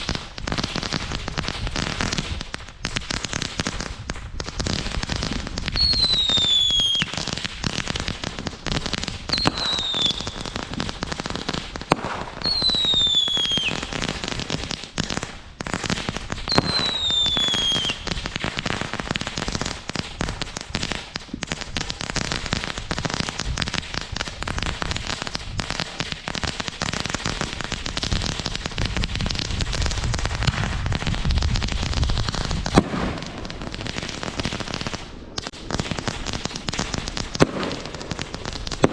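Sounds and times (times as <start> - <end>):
fireworks crackling and banging: 0.0 - 38.9
shrill firework whistles: 5.6 - 7.3, 9.3 - 10.6, 12.4 - 14.1, 16.4 - 18.3.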